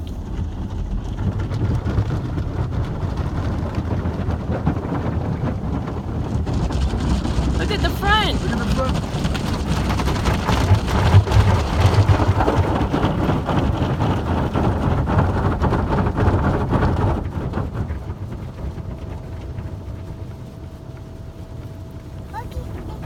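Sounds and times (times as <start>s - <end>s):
car wash water spraying on car: 0.0s - 23.0s.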